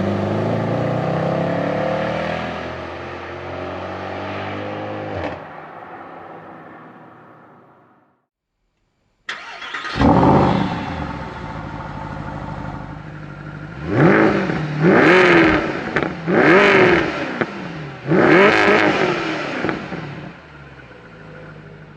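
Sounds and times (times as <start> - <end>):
car engine starting and revving: 0.0 - 5.6, 9.3 - 21.9.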